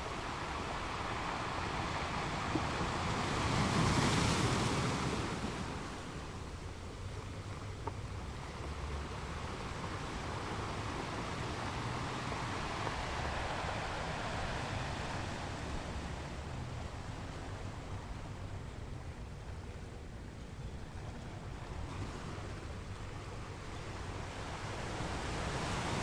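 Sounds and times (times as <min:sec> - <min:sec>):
waves hissing on beach: 0:00.0 - 0:06.5, 0:09.5 - 0:18.0
low rumble of surf: 0:00.0 - 0:26.0.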